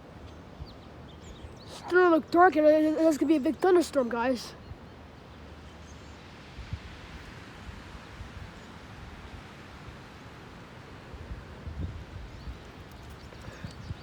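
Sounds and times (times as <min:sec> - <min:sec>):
wind buffeting microphone: 0:06.5 - 0:14.0.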